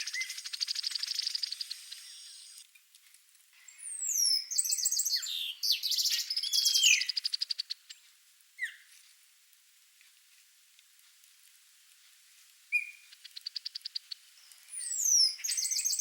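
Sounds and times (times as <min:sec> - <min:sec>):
songbird singing whistles and trills: 0:00.0 - 0:02.6, 0:03.6 - 0:07.8, 0:08.6 - 0:08.9, 0:12.7 - 0:16.0.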